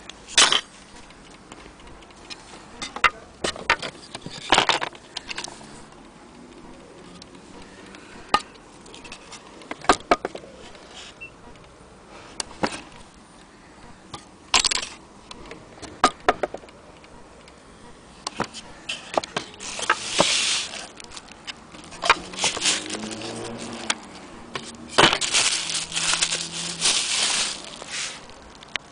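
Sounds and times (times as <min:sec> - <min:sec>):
rustling: 0:18.4 - 0:28.9.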